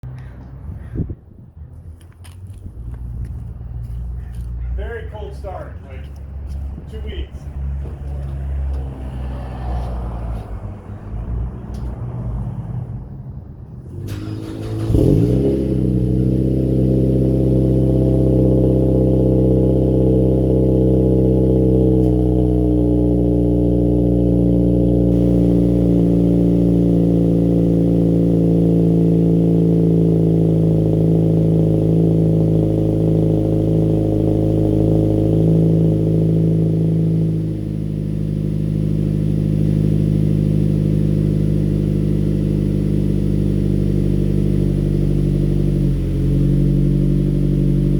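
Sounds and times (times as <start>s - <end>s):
engine starting and idling: 13.9s - 16.7s.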